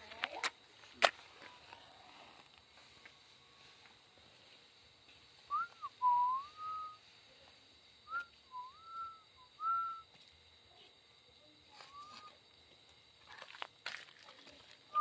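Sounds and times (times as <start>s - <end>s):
person whistling a tune: 5.5s - 7.0s, 8.1s - 10.1s, 11.8s - 12.3s.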